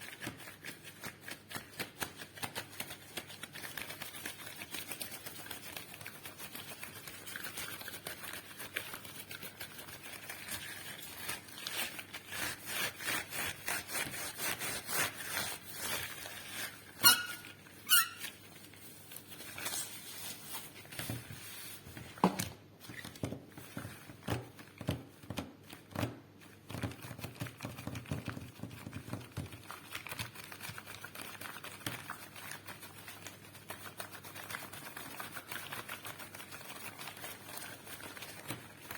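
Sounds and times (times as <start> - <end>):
rubber squeaks: 17.0 - 18.4.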